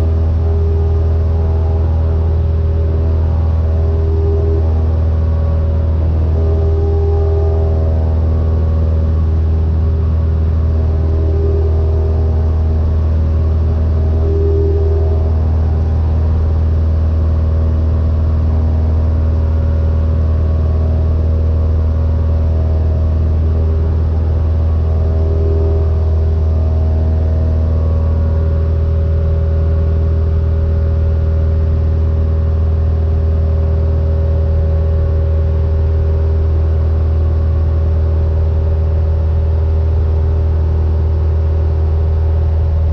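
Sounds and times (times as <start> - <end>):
aircraft engine and propeller droning: 0.0 - 38.1.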